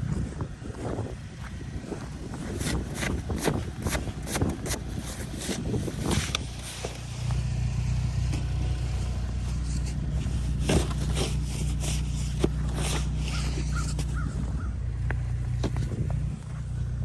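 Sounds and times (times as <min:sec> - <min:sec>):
car engine running: 0:00.0 - 0:17.0
crunches and scrapes: 0:02.3 - 0:07.5, 0:08.3 - 0:14.4.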